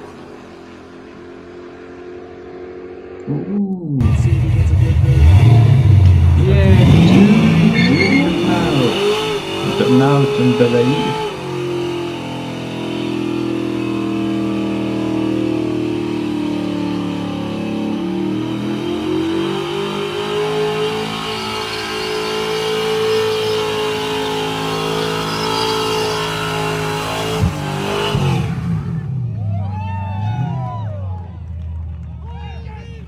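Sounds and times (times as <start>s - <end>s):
car engine revving high: 0.0s - 31.0s.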